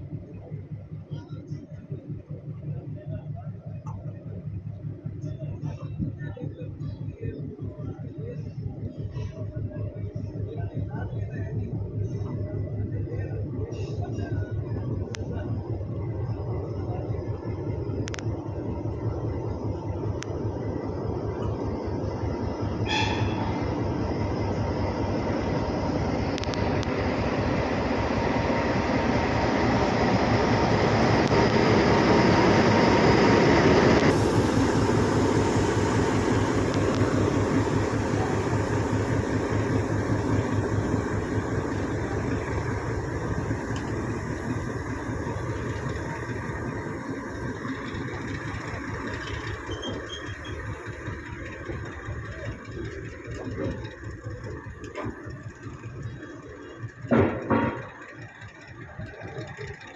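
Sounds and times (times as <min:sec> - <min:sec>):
train wheels clattering over rails: 0:26.4 - 0:59.9.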